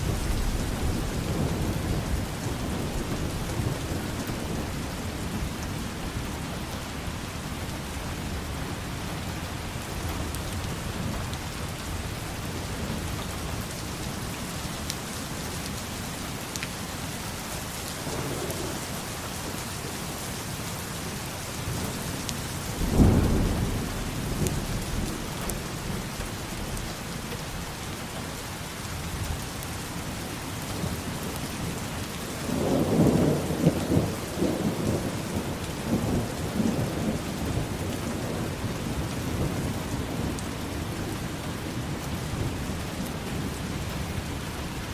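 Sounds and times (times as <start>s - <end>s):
heavy rain falling: 0.0s - 44.9s
thunder rumbling: 17.0s - 27.8s
thunder clap: 17.6s - 20.9s, 22.7s - 26.9s.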